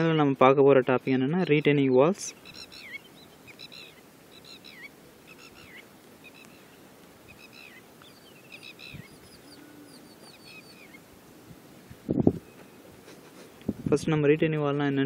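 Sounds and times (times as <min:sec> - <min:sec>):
small birds chirping: 0:00.0 - 0:11.1
faint background hiss: 0:00.0 - 0:15.0.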